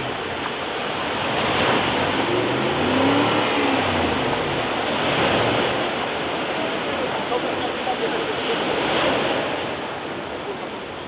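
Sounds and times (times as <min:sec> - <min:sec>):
car engine revving: 0:00.0 - 0:07.3
surf: 0:00.0 - 0:11.0.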